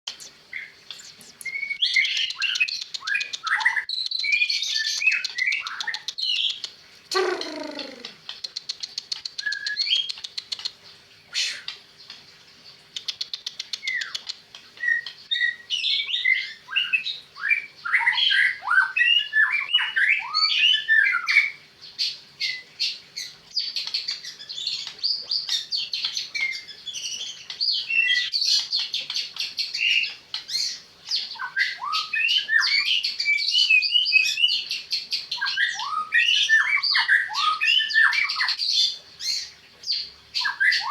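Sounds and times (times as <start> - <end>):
songbird whistling and rattling: 0.1 - 10.8, 13.0 - 17.0.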